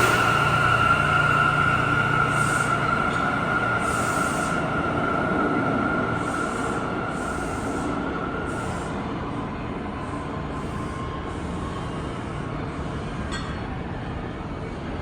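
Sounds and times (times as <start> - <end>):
high whine: 0.0 - 9.7
subway train rumble: 0.0 - 15.0.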